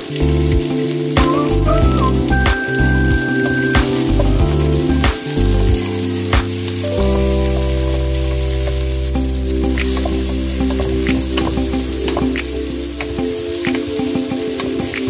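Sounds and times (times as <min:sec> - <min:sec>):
onions sizzling in oil: 0:00.0 - 0:10.6
background music chords: 0:00.0 - 0:15.0.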